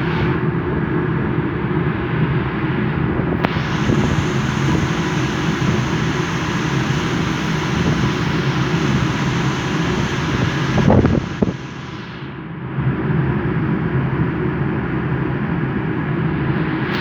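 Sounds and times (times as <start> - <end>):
boat engine droning: 3.4 - 12.4.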